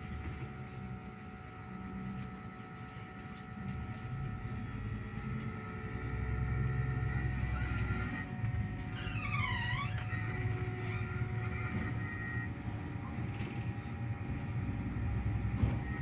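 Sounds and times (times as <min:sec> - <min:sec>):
bus engine and road hum: 0:00.0 - 0:16.0.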